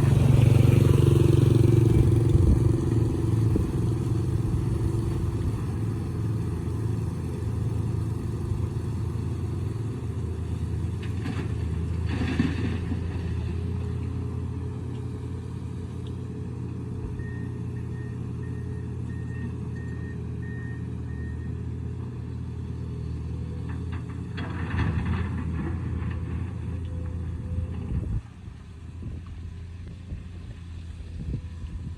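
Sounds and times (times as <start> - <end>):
excavator diesel engine running: 0.0 - 31.9
faint short beeps: 17.2 - 21.6.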